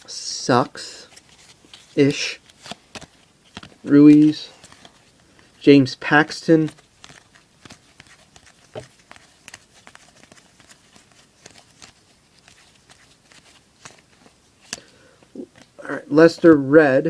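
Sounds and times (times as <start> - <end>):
trading cards flipped by hand: 1.1 - 5.5, 6.6 - 15.8.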